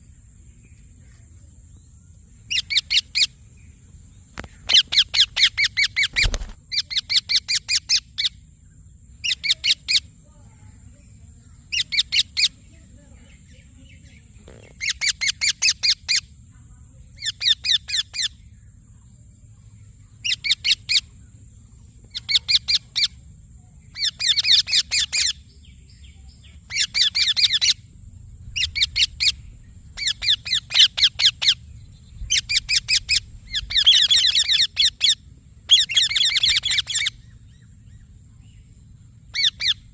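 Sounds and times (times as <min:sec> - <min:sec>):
parakeet chirping: 0:28.6 - 0:29.4, 0:30.0 - 0:31.6, 0:32.3 - 0:37.2, 0:39.3 - 0:39.9.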